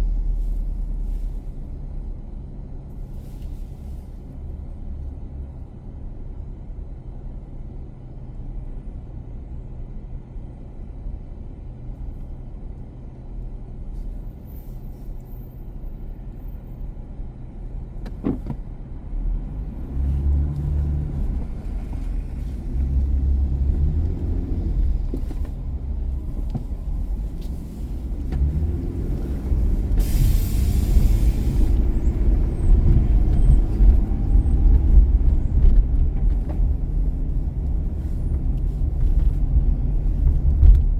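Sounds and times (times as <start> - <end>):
car engine and road noise: 0.0 - 40.9
short hiss: 30.0 - 31.8.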